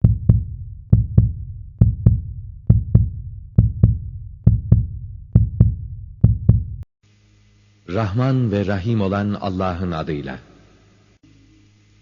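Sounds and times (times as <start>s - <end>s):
heartbeat thumps: 0.0s - 6.9s.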